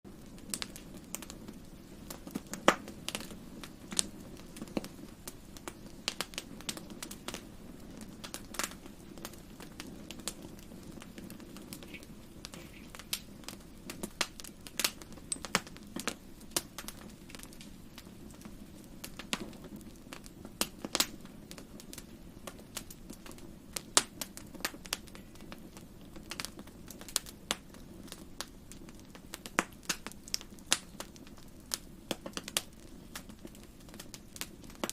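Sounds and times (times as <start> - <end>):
low rumble of burning: 0.1 - 34.9
wood fire crackling: 0.1 - 34.9.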